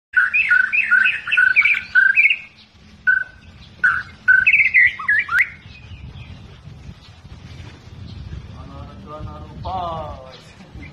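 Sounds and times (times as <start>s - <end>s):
bird singing whistled phrases: 0.2s - 6.4s.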